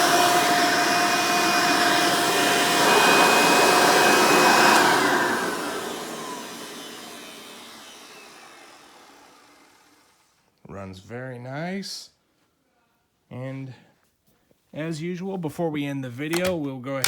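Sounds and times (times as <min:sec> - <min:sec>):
vacuum cleaner motor whining: 0:00.0 - 0:10.3.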